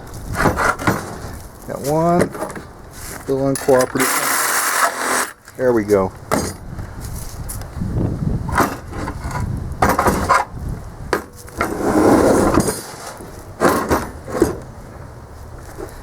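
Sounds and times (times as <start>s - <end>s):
steel tank clunking and scraping: 0.3s - 1.4s, 8.5s - 14.7s.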